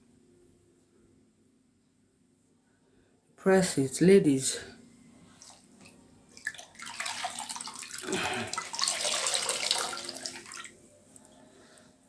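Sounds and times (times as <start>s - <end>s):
water splashing in a bowl: 5.4s - 10.8s.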